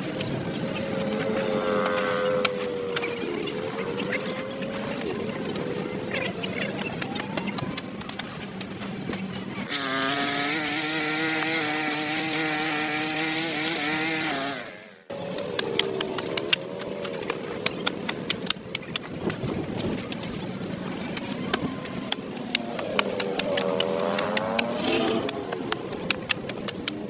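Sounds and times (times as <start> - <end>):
small engine running fast: 0.0 - 5.1, 9.6 - 19.5, 21.5 - 27.0.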